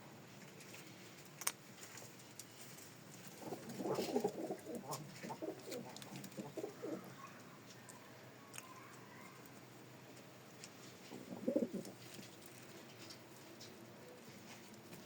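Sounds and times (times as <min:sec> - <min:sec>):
pigeon cooing: 0:03.4 - 0:07.2, 0:11.1 - 0:12.0.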